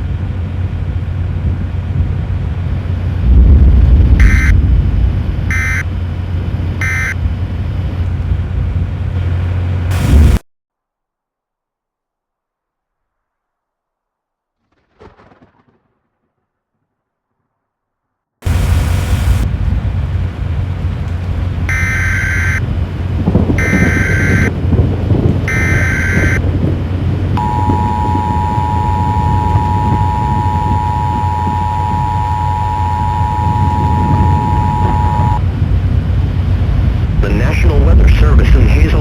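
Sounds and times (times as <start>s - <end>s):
low rumble: 0.0s - 6.7s, 18.5s - 39.0s
two-tone attention signal: 4.2s - 4.6s, 5.5s - 5.8s, 6.8s - 7.2s, 21.7s - 22.6s, 23.6s - 24.5s, 25.5s - 26.4s, 27.4s - 35.4s
warbling data bursts: 23.6s - 24.5s, 25.5s - 26.4s, 27.4s - 35.4s.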